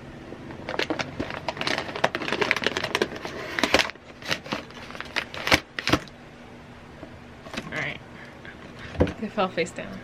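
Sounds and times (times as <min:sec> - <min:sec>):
plastic bag tearing and crinkling: 0:00.6 - 0:06.1.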